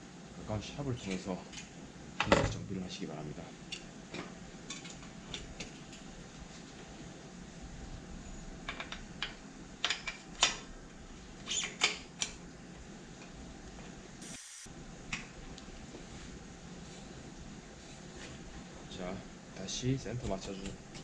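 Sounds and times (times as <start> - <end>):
brief hiss: 14.2 - 14.7.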